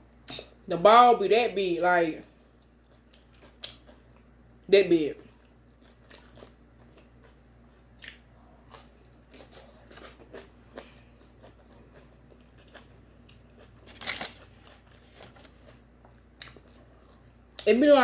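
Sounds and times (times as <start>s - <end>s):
person chewing crunchy food: 2.5s - 4.3s, 5.3s - 17.6s.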